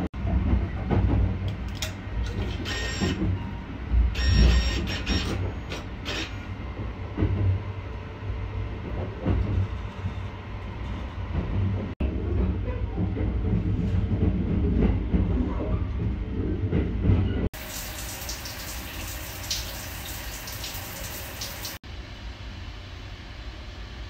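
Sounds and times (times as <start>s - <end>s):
train rumbling: 0.0s - 17.8s
whirring clicking bursts: 1.8s - 3.2s, 4.1s - 6.5s.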